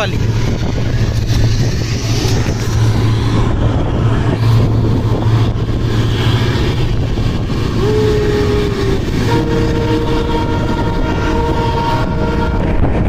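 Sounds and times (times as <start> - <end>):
train wheels rumbling on rail: 0.0 - 13.0
wind on microphone: 0.0 - 13.0
train horn: 4.4 - 13.0.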